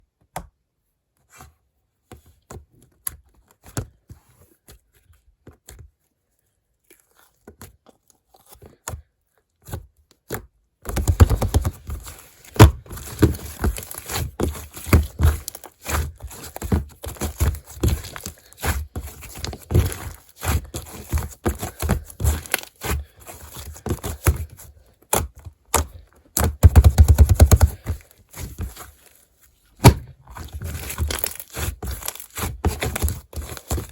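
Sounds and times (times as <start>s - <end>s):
slime crackling and squishing: 10.9s - 25.4s, 26.0s - 33.9s
fingers poking slime: 23.8s - 28.0s.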